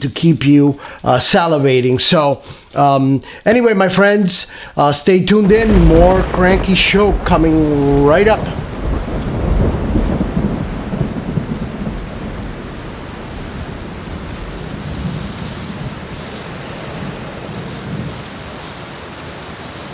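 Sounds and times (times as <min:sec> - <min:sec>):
rain falling: 0:00.0 - 0:19.9
low rumble of thunder: 0:05.4 - 0:18.4.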